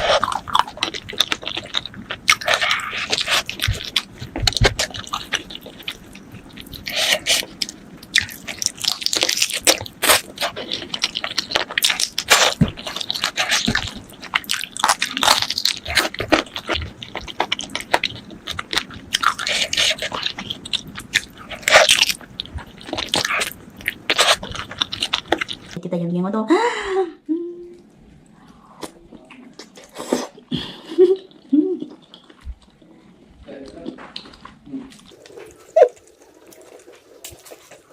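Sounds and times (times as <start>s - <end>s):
crunching bites and chewing: 0.0s - 25.8s.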